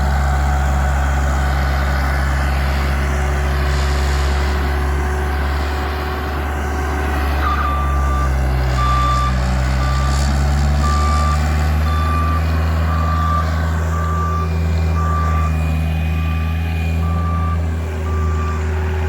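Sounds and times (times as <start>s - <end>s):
low engine drone: 0.0s - 19.0s
reversing alarm beeping: 7.4s - 19.0s.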